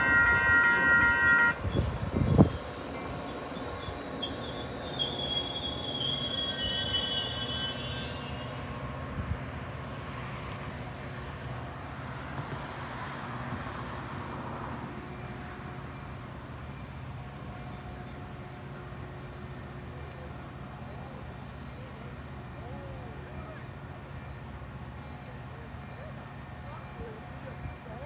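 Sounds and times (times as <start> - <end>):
train wheel and brake squeal: 0.0 - 9.3
low rumble of standing train: 0.0 - 28.0.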